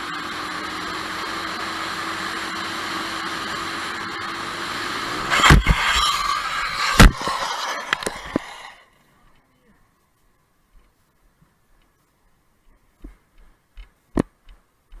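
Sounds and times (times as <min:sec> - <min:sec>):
car road and engine noise: 0:00.0 - 0:08.8
car crash: 0:04.5 - 0:08.8
sharp bang: 0:04.8 - 0:08.8.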